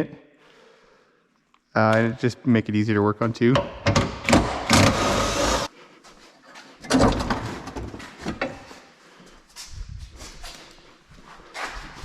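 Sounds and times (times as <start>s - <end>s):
metal body parts clunking and scraping: 6.5s - 8.8s.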